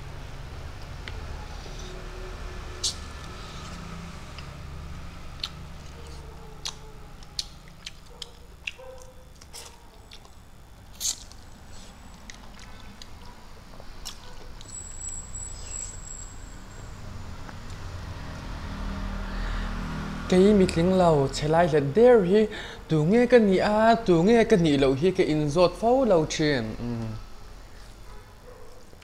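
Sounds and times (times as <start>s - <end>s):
low steady hum: 0.0s - 29.0s
man chewing food: 5.3s - 15.0s, 27.0s - 29.0s.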